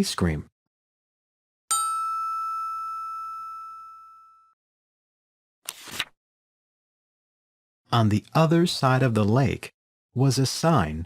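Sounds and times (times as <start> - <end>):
single chime: 1.7 - 4.6.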